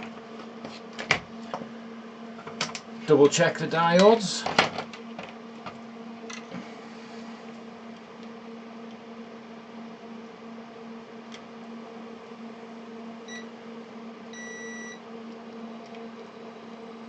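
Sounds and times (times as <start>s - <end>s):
steady hum: 0.0s - 17.0s
multimeter beeping: 14.4s - 15.0s.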